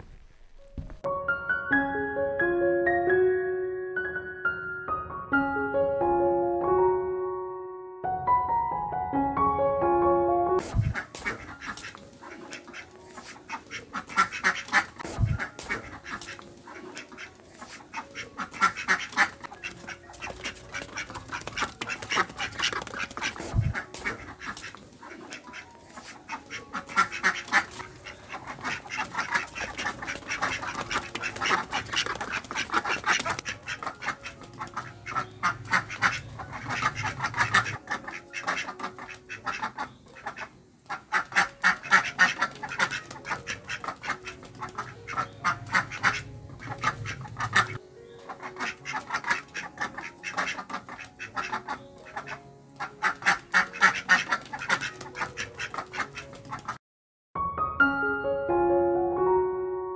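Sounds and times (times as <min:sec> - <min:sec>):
ducks quacking: 0:10.6 - 0:56.8.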